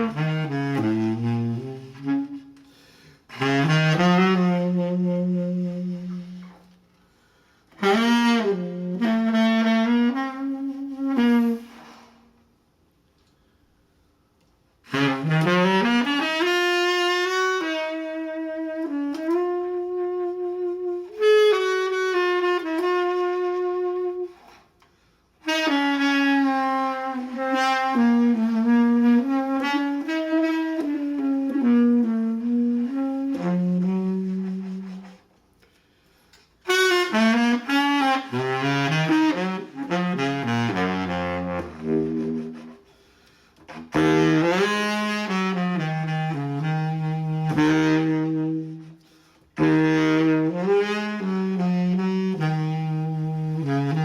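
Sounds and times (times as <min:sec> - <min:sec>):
solo saxophone melody: 0:00.0 - 0:54.0.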